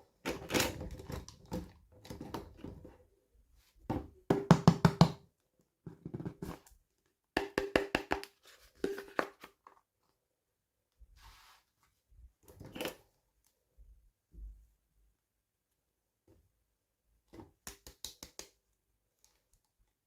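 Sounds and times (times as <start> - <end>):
plastic toy taps and clicks: 7.4 - 8.3, 17.6 - 18.6.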